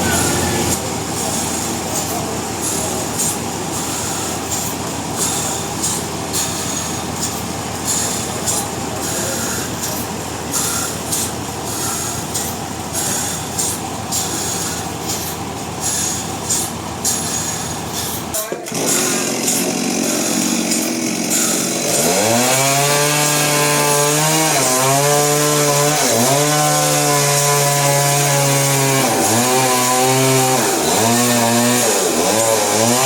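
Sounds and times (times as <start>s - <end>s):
sawmill machinery running: 0.0s - 33.0s.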